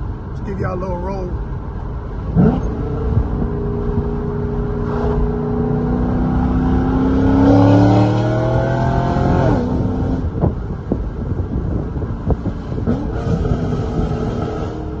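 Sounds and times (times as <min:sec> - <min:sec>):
car engine accelerating: 0:01.4 - 0:15.0.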